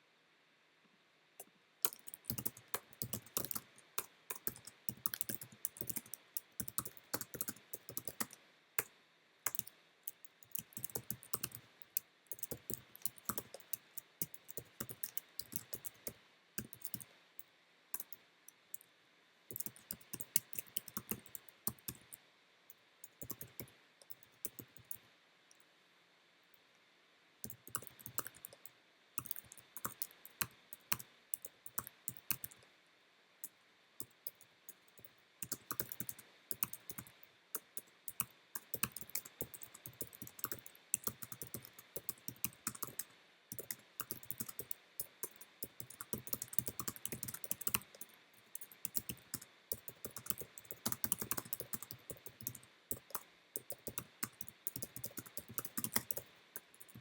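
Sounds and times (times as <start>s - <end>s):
typing on computer keyboard: 1.8s - 8.4s, 9.5s - 17.1s, 19.5s - 22.1s, 23.1s - 25.0s, 27.4s - 28.6s, 29.2s - 32.6s, 35.0s - 57.0s.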